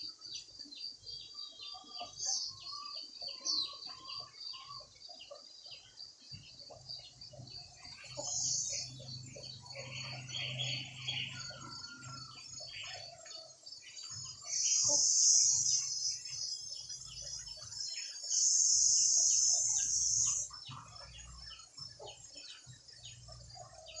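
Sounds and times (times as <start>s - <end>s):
birds chirping: 0.0s - 24.0s
high-pitched buzzing hiss: 18.3s - 20.5s.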